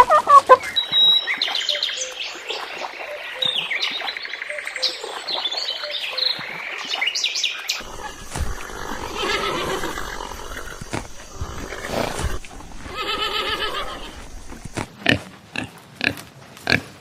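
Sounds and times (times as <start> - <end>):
birds chirping: 0.0 - 14.9
animal calling in wavering cries: 7.8 - 14.9.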